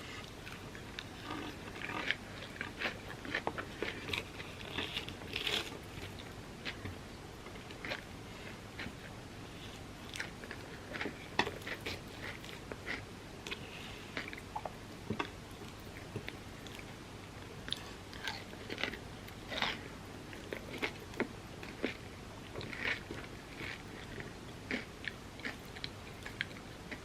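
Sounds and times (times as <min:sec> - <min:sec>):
person chewing and crunching: 0:00.2 - 0:16.9, 0:17.6 - 0:27.0.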